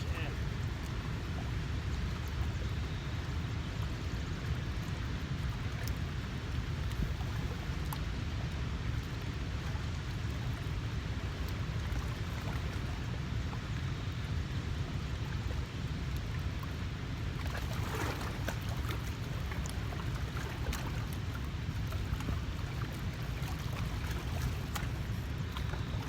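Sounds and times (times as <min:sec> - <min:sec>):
water splashing: 0:00.0 - 0:00.6, 0:17.3 - 0:26.0
moving water: 0:00.0 - 0:26.0.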